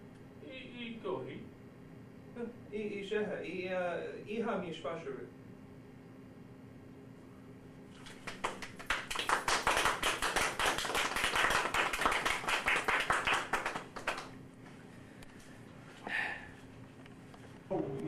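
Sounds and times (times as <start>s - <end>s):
audience clapping: 8.0s - 14.4s.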